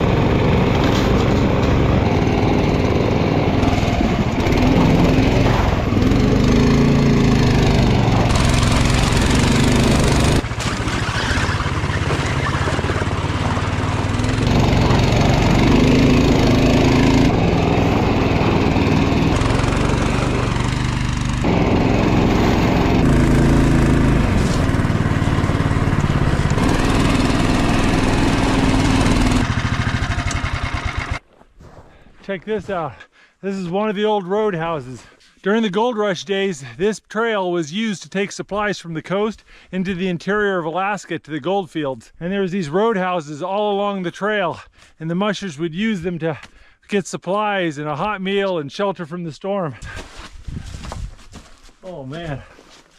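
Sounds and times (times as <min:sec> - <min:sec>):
small engine running loudly: 0:00.0 - 0:31.2.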